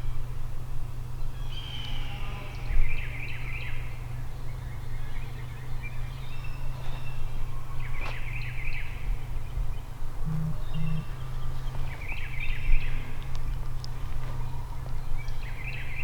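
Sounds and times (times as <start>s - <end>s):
distant turkey gobbling: 10.2s - 11.5s
low rumble: 10.2s - 11.5s.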